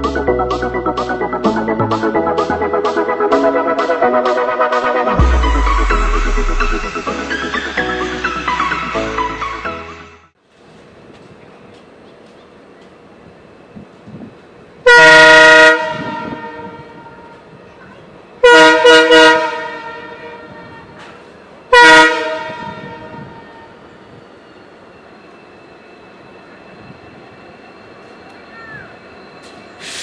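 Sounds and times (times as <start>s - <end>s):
train horn blasts: 14.8s - 17.3s, 18.4s - 20.9s, 21.7s - 23.6s.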